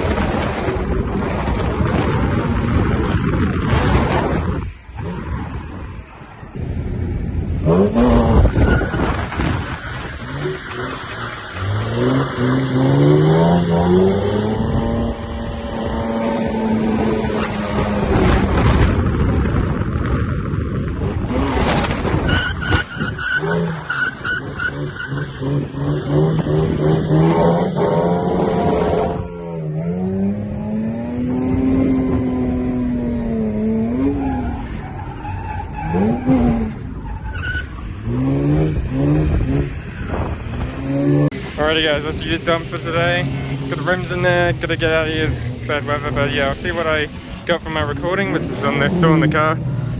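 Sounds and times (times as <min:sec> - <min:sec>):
tyres skidding: 0:00.0 - 0:49.9
car engine revving hard: 0:06.6 - 0:19.8, 0:20.9 - 0:34.6, 0:38.0 - 0:49.9.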